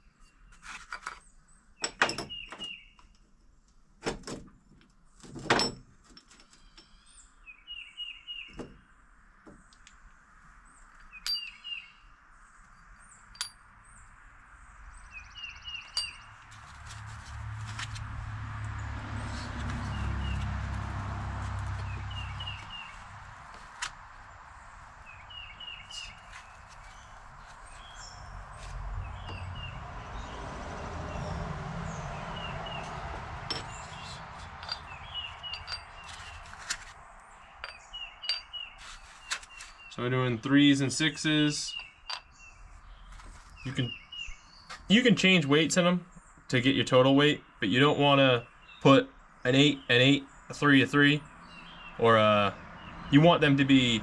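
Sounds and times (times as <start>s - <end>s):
small birds chirping: 0.0s - 3.2s, 6.4s - 17.0s, 18.7s - 30.5s, 31.1s - 54.0s
metallic clinks of parts: 11.0s - 11.6s, 12.7s - 13.7s, 15.9s - 16.3s, 33.5s - 36.8s, 37.6s - 38.6s.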